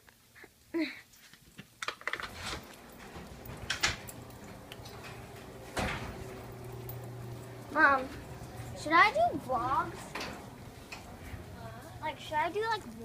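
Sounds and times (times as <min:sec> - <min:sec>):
latch and handle clicks: 0:01.9 - 0:07.7
door opening: 0:01.9 - 0:11.6
steady low hum: 0:02.3 - 0:13.0.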